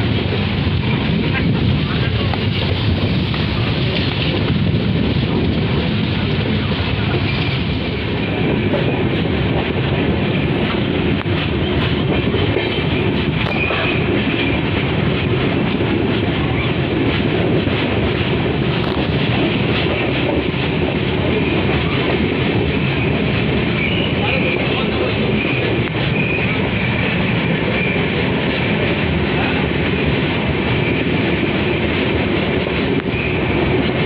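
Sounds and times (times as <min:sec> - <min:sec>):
train wheels rumbling on rails: 0:00.0 - 0:34.0
faint high wheel squeal: 0:23.7 - 0:24.4, 0:25.4 - 0:27.1.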